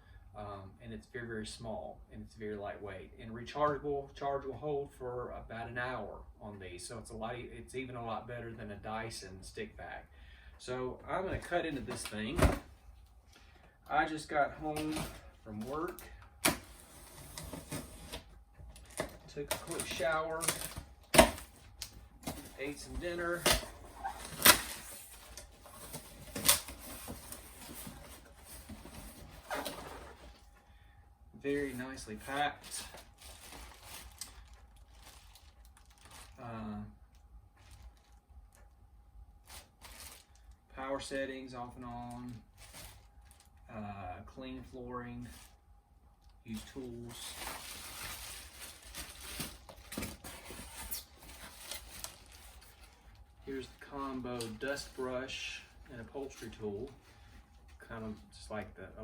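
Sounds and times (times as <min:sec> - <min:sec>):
cardboard packaging rustling: 0:14.6 - 0:30.6, 0:31.5 - 0:36.4, 0:39.4 - 0:40.4, 0:42.1 - 0:43.5, 0:46.6 - 0:58.4.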